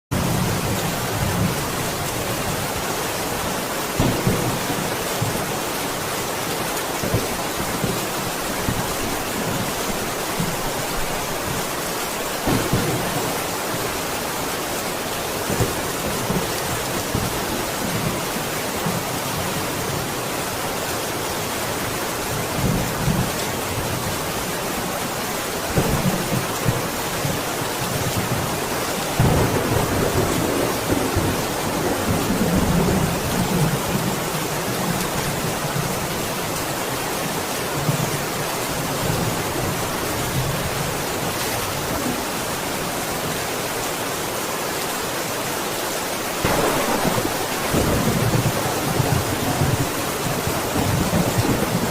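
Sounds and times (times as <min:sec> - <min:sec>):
heavy rain: 0:00.1 - 0:51.9
thunder rumbling: 0:12.4 - 0:14.1, 0:29.1 - 0:33.9, 0:46.4 - 0:51.9.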